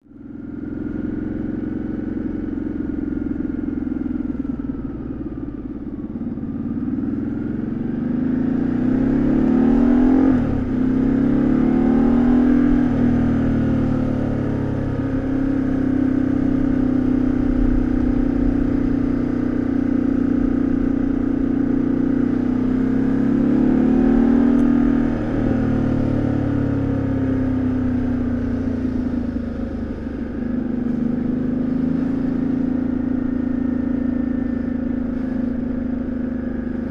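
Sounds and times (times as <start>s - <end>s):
motorcycle engine accelerating: 0.1s - 36.9s.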